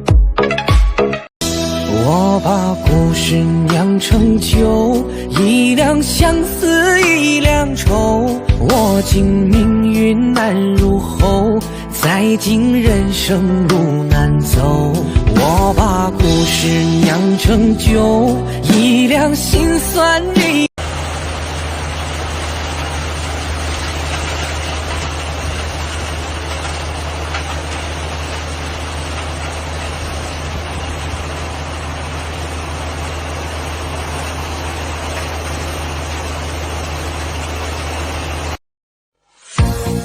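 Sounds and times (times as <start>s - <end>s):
crusher machinery running: 12.0s - 38.6s.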